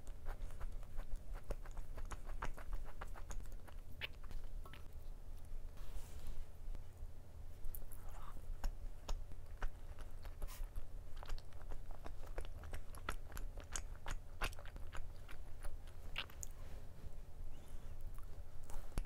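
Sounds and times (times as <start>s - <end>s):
person chewing with wet mouth clicks: 0.0s - 4.9s, 7.7s - 16.6s.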